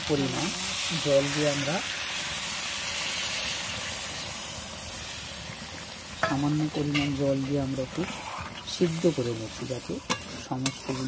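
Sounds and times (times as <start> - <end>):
curry sizzling in a pan: 0.0 - 11.0
metal spatula scraping a pan: 6.2 - 11.0.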